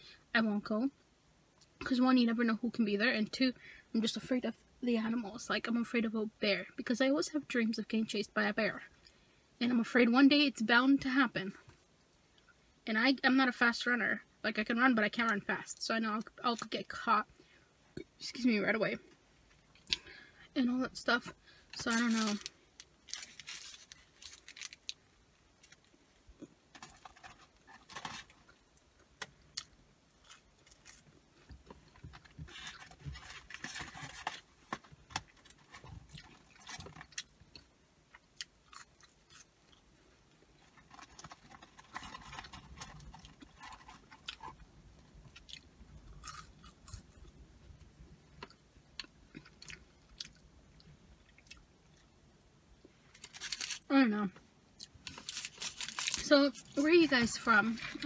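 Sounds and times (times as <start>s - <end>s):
person chewing food: 46.2s - 47.3s.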